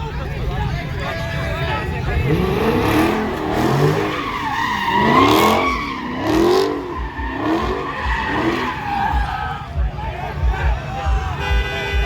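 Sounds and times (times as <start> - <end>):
car engine revving: 0.0 - 11.5
tyres squealing: 0.5 - 9.8.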